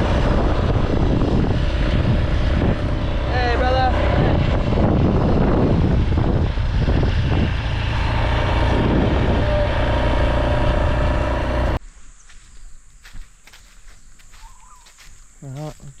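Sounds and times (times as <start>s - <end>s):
vehicle engine and road noise: 0.0s - 11.9s.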